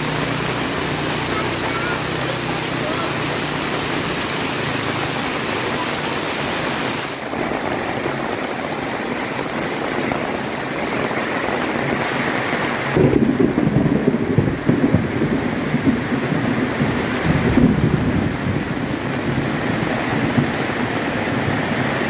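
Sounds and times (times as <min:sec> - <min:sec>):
heavy rain hissing: 0:00.0 - 0:22.0
thunder rumbling: 0:12.7 - 0:22.0.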